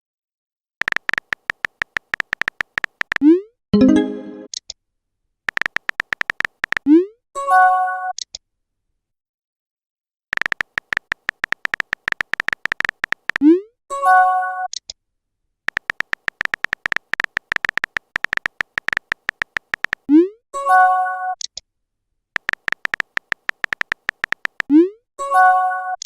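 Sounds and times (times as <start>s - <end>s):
phone keyboard typing clicks: 0.8s - 3.2s, 5.5s - 6.9s, 10.3s - 13.4s, 15.7s - 20.1s, 22.4s - 24.7s
electronic chime: 3.8s - 4.5s.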